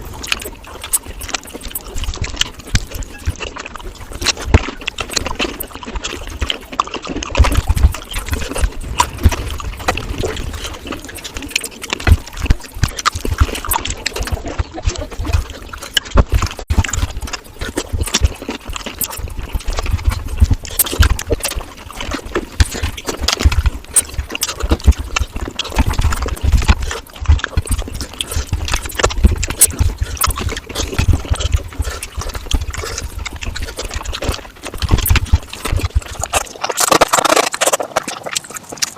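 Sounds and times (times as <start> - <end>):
wet chewing mouth sounds: 0.0 - 38.9.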